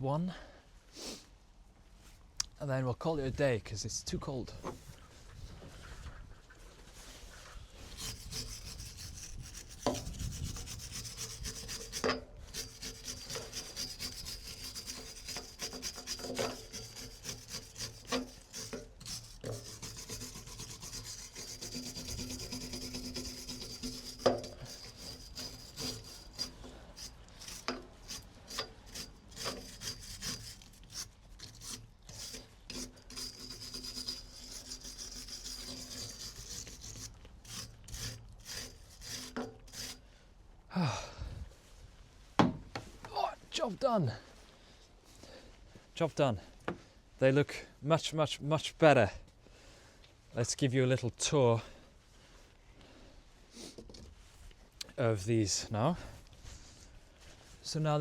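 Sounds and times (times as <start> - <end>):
wire brush scraping metal: 7.8 - 40.0.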